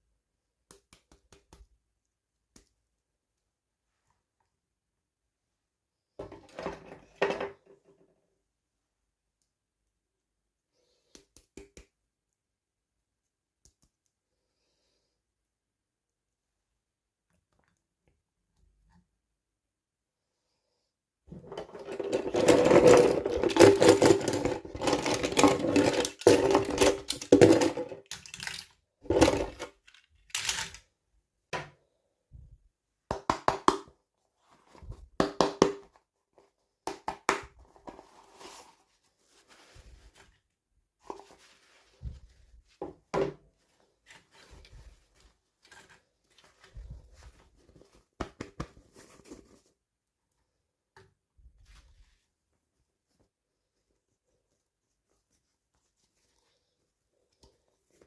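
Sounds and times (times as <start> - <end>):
plastic pieces clicking and tapping: 21.9 - 30.8
packaging crinkling and rustling: 22.4 - 28.8.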